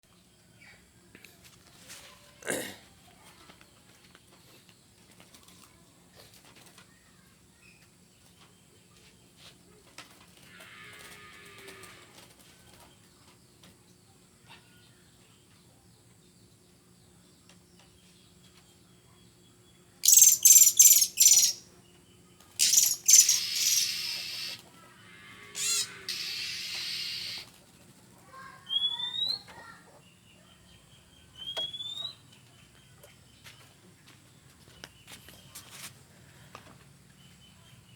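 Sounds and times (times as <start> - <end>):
bird harsh rasping calls: 20.0 - 21.6, 22.6 - 27.5
bird rising whistled notes: 25.6 - 27.5, 31.4 - 32.2.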